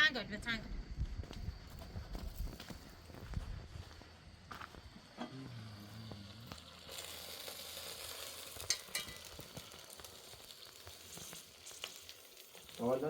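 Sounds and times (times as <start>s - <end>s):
food sizzling in a pan: 5.2s - 13.0s.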